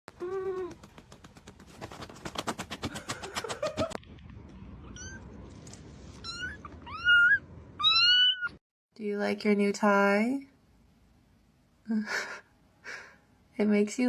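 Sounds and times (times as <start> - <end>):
cat meowing: 6.2 - 8.6.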